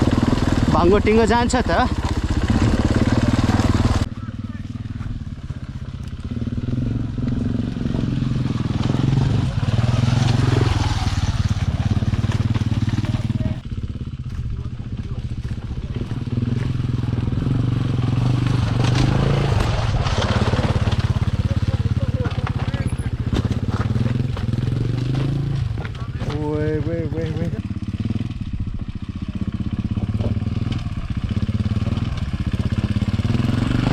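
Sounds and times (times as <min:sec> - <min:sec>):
dirt bike engine under load: 0:00.0 - 0:28.8.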